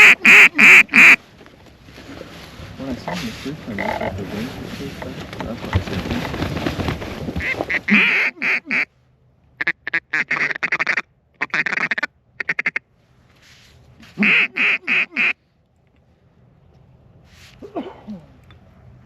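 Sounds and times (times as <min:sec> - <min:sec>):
duck quacking: 0:00.0 - 0:01.2, 0:03.8 - 0:04.2, 0:07.4 - 0:08.9, 0:09.6 - 0:12.8, 0:14.1 - 0:15.4.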